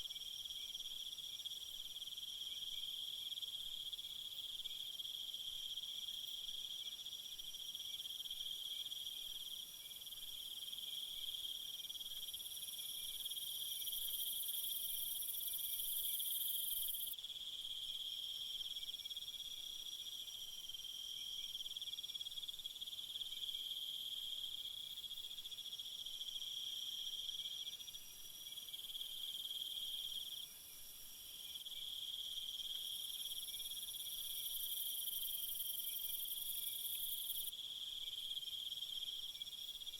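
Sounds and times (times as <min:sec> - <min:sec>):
high-pitched insect trill: 0:13.0 - 0:17.2, 0:31.4 - 0:39.9
crickets chirring: 0:31.4 - 0:39.9.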